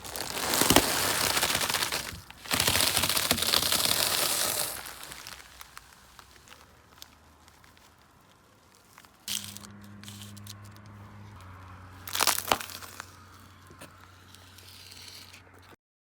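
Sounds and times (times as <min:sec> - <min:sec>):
loud crunch: 0:00.0 - 0:15.8
plastic mask crackling and crumpling: 0:00.0 - 0:15.8
car engine humming: 0:09.3 - 0:14.6.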